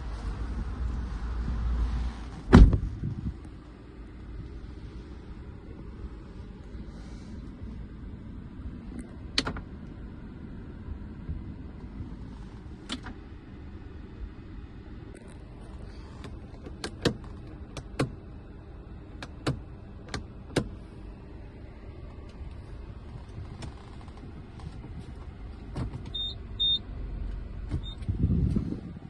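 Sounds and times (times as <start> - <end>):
loud low rumble: 0.0 - 9.3
steady low hum: 0.0 - 29.0
car control clicks: 9.4 - 9.6, 12.9 - 13.2, 16.2 - 18.2, 19.2 - 20.7.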